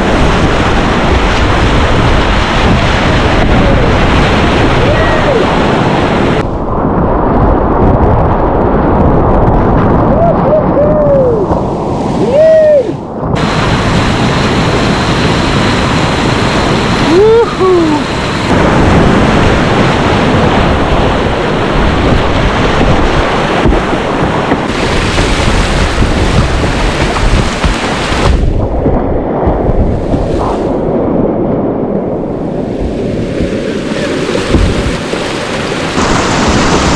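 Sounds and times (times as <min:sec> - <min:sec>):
rushing whitewater: 0:00.0 - 0:06.4, 0:11.2 - 0:28.6, 0:32.4 - 0:36.9
wind on microphone: 0:00.0 - 0:36.9
person calling wordlessly: 0:17.1 - 0:18.1.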